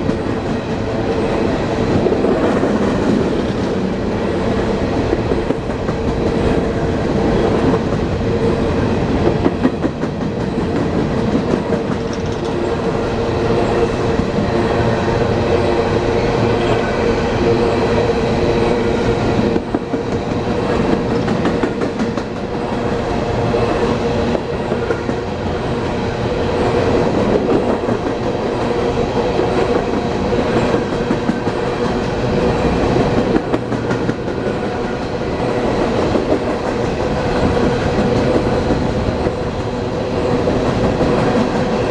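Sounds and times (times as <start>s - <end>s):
steady train hum: 0.0s - 41.9s
train wheels clicking over rail joints: 9.2s - 12.6s.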